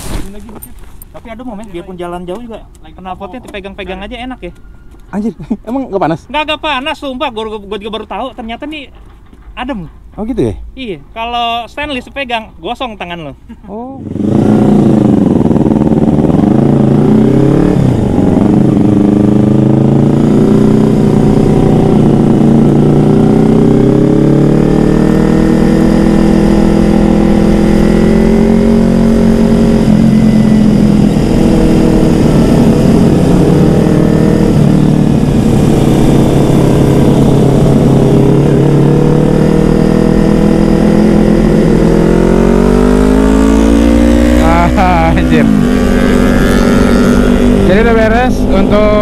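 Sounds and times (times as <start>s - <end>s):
motorcycle engine running hard: 14.0s - 49.0s.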